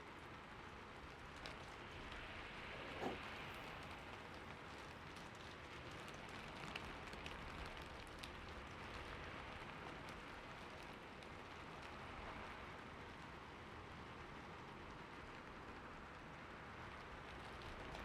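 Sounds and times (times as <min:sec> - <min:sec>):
steady rain hiss: 0:00.0 - 0:18.0
raindrops ticking: 0:03.7 - 0:18.0.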